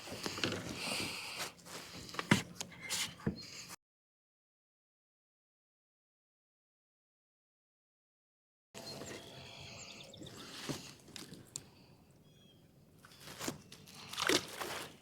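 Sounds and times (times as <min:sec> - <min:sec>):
birds chirping: 0:08.8 - 0:13.9.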